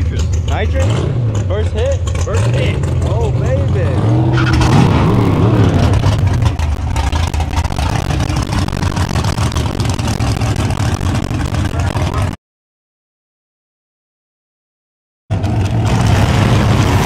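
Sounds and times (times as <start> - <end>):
car engine idling loudly: 0.0 - 12.4.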